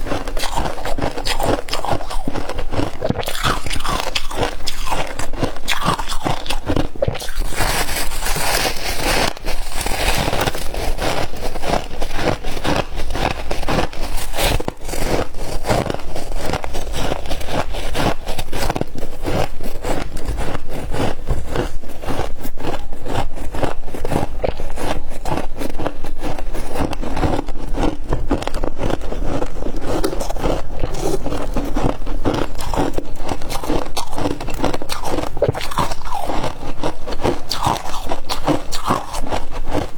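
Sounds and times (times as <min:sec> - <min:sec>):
crunching and chewing ice: 0:00.0 - 0:39.9
scraping sounds: 0:07.4 - 0:35.3.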